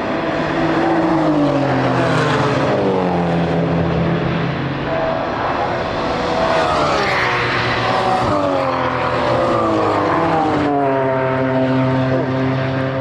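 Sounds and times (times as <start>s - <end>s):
racing car engines: 0.0s - 13.0s
steady low drone: 2.7s - 13.0s.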